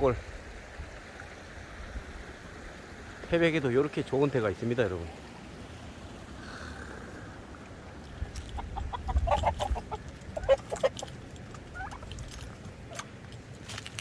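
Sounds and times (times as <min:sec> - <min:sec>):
chickens clucking: 0:08.0 - 0:13.1.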